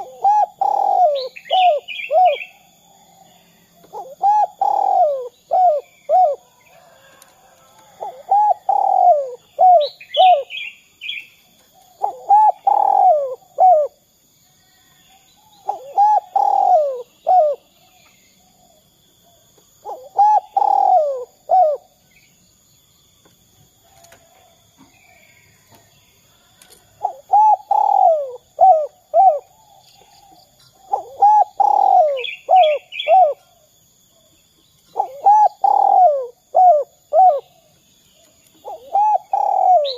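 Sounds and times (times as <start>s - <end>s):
dove cooing: 0.0s - 14.0s, 15.6s - 18.8s, 19.8s - 22.0s, 26.6s - 33.7s, 34.9s - 39.9s
small bird chirping: 0.0s - 24.2s, 24.8s - 39.9s.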